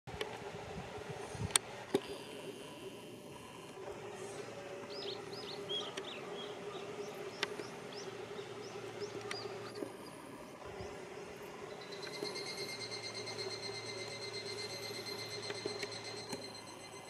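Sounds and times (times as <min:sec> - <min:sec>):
low steady hum: 0:00.1 - 0:17.0
songbird chirping: 0:04.2 - 0:16.3.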